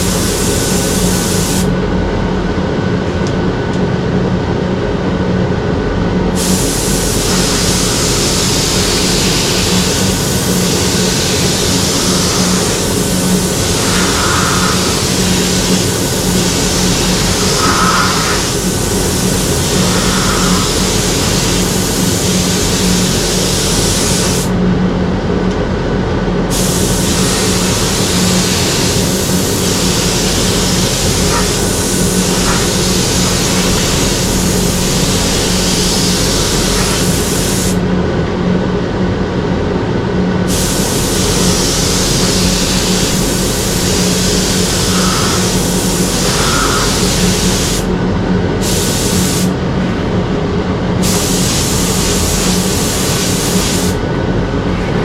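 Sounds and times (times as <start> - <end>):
spray gun hissing: 0.0 - 1.7, 6.4 - 24.6, 26.5 - 37.8, 40.4 - 47.9, 48.5 - 49.6, 51.0 - 54.0
steady low hum: 0.0 - 55.0.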